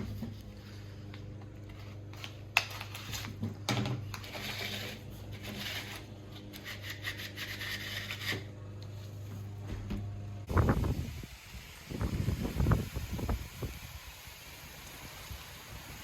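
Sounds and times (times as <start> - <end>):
steady low hum: 0.0 - 13.1
rubbing and scraping on surface: 4.2 - 9.5.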